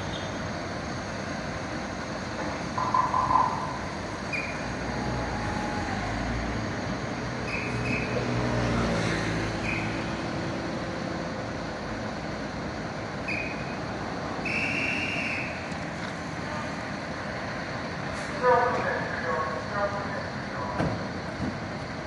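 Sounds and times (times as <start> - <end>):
street traffic: 0.0 - 22.0.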